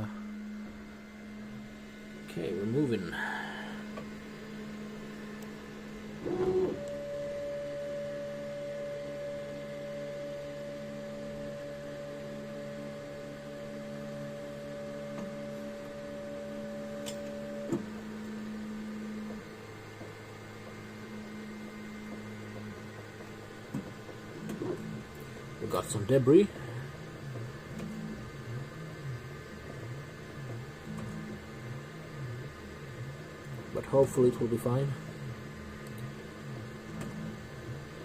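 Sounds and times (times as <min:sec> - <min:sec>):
low steady hum: 0:00.0 - 0:38.0
stepper motors whining: 0:00.0 - 0:38.0
click: 0:35.8 - 0:36.1.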